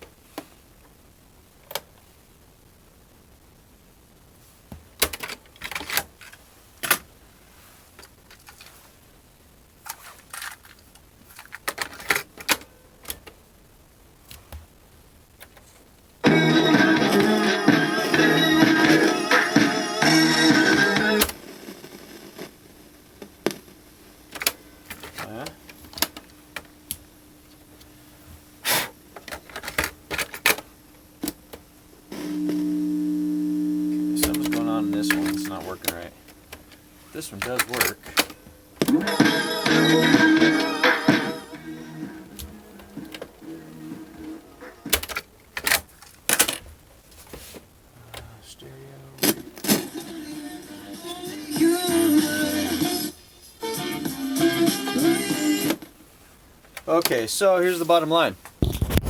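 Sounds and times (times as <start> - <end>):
loud electronic tone: 32.1 - 35.8.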